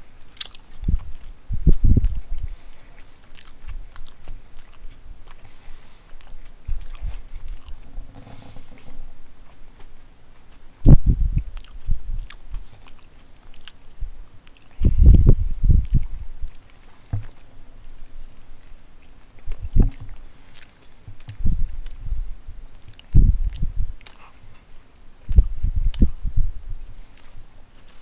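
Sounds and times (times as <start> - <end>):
chewing and biting sandwich: 0.2 - 7.9, 9.5 - 26.2, 26.8 - 28.0
wet mouth clicks and smacks: 0.3 - 7.8, 10.8 - 17.5, 18.6 - 26.2, 26.9 - 28.0
low thuds: 6.7 - 10.2.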